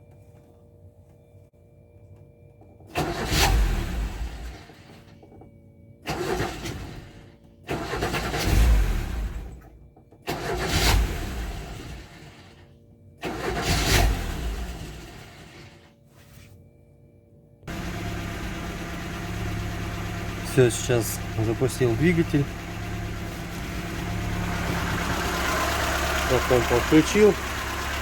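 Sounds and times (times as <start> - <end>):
car engine starting and dying: 2.8 - 15.9, 17.7 - 28.0.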